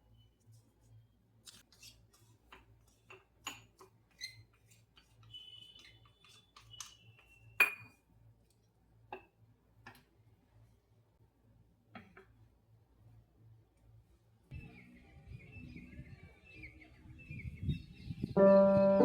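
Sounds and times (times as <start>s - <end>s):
small objects clicking and tapping: 4.9s - 7.4s.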